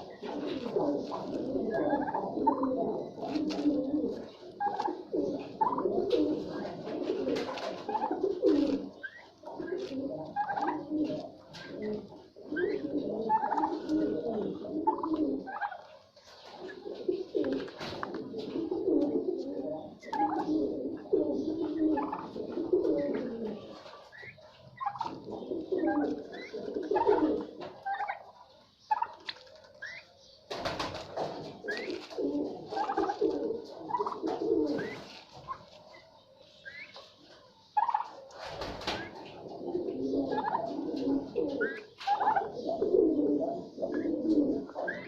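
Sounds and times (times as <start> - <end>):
birds cooing: 0.0 - 45.0
wings flapping: 5.6 - 8.9, 30.5 - 35.6, 38.3 - 39.4.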